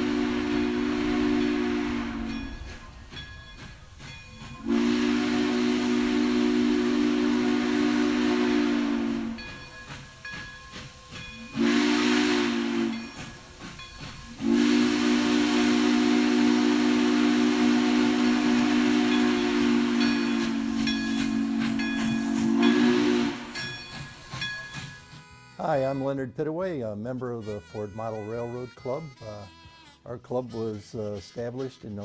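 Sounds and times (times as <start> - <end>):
steam locomotive whistle: 0.0 - 2.8, 4.5 - 9.6, 11.4 - 13.3, 14.3 - 26.3
steam hissing: 0.0 - 26.2.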